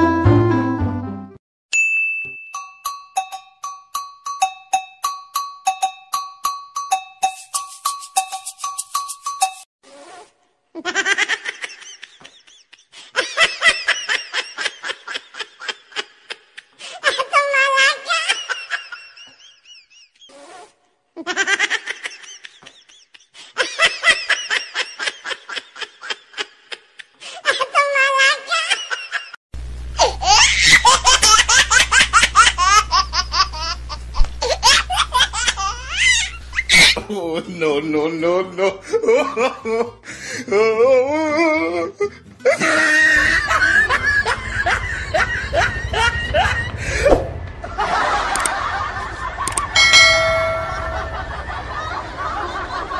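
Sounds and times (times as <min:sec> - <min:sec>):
rapid high-pitched laughter: 0:30.0 - 0:37.1, 0:42.5 - 0:46.7
low steady hum: 0:49.6 - 0:52.5.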